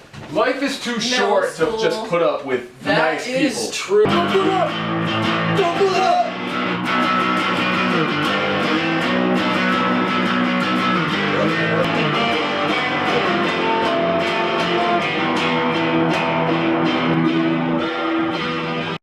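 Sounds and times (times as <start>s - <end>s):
strummed electric guitar music: 4.0s - 19.0s.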